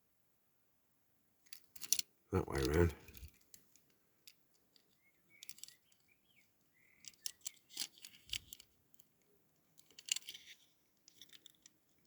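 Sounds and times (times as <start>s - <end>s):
toy car parts clicking: 1.5s - 2.1s, 3.1s - 6.1s, 7.0s - 12.0s.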